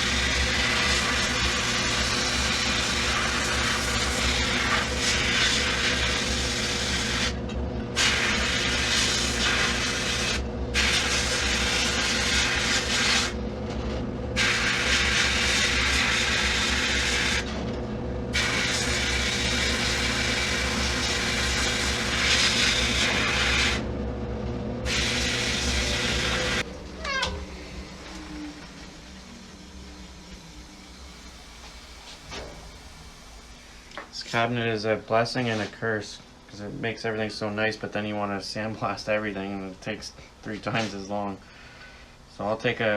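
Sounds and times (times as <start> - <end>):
air blast gun hissing: 0.0 - 13.4, 14.4 - 17.5, 18.3 - 23.8, 24.8 - 26.7, 27.4 - 34.2
motor hum: 0.0 - 34.7.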